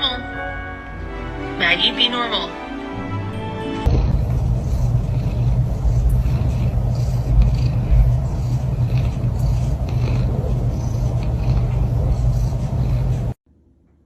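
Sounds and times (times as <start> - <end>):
low rumble: 3.9 - 13.4.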